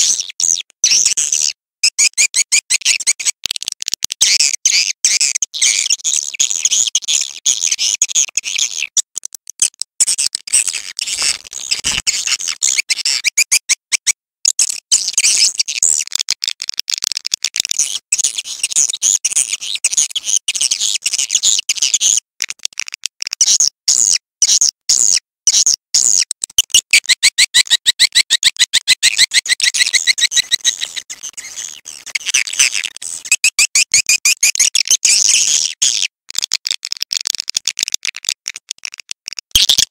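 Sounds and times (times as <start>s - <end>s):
swiftlet chirping and twittering: 26.4s - 35.4s
evenly spaced chirps: 28.8s - 31.1s.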